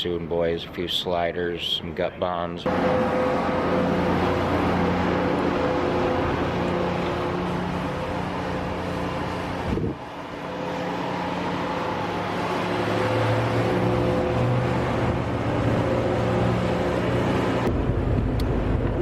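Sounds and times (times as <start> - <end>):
car engine and road noise: 2.6 - 19.0.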